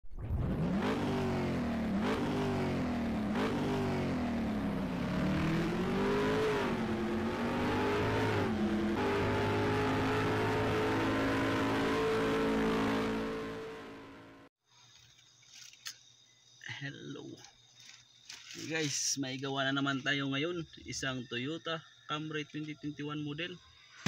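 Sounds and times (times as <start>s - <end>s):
car engine revving: 0.2s - 14.5s.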